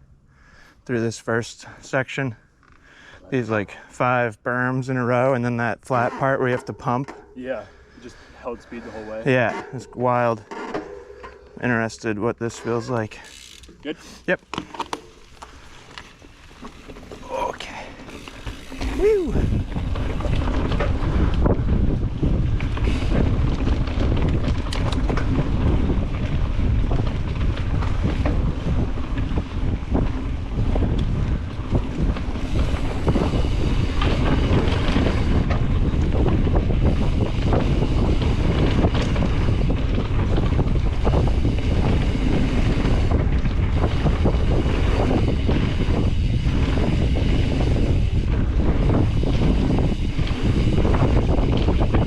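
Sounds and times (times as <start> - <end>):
tyres rolling over dirt: 14.4 - 52.0
wind buffeting microphone: 17.7 - 52.0
bike knocks and clatters: 18.0 - 52.0.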